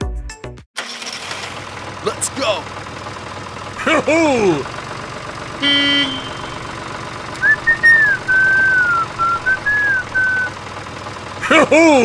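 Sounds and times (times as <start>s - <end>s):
tractor engine running: 0.8s - 12.0s
short horn toot: 5.6s - 6.7s
whistled tune: 7.4s - 10.6s.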